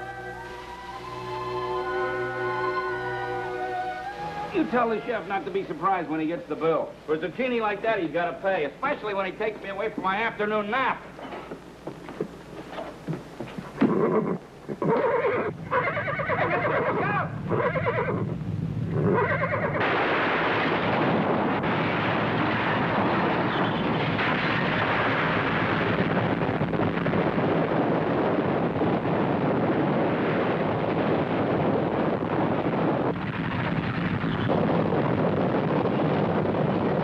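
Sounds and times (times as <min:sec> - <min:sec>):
horse whinnying: 0:13.8 - 0:19.8
loud dense rumbling: 0:17.0 - 0:37.0.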